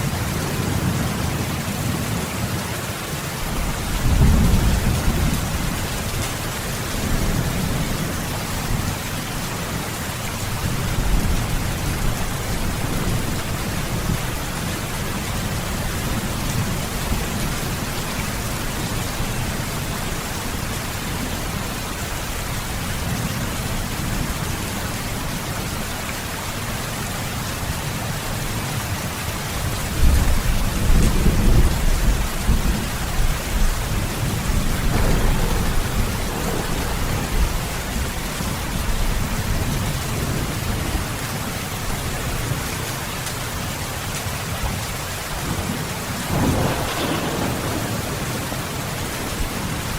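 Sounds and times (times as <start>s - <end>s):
steady rain falling: 0.0s - 49.9s
low rolling thunder: 3.4s - 9.4s, 29.9s - 42.6s, 45.4s - 49.9s.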